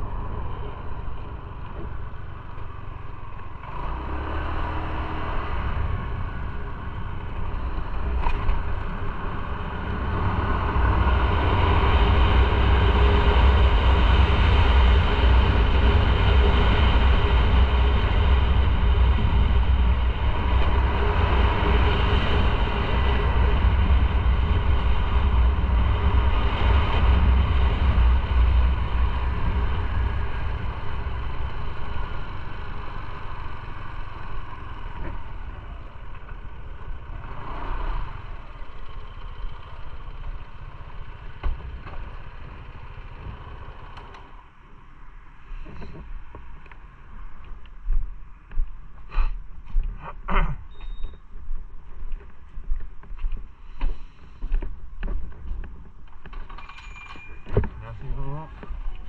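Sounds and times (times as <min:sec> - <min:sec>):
motorcycle engine: 0:00.0 - 0:44.9
road noise: 0:00.0 - 0:59.0
wind rumble on microphone: 0:00.0 - 0:59.0.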